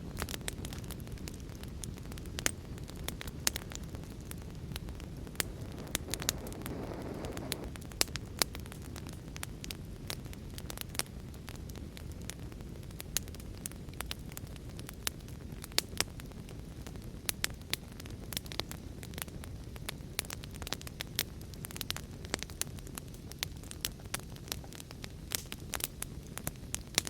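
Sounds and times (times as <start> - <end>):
wood fire crackling and popping: 0.0 - 27.0
rain rushing: 5.3 - 7.7.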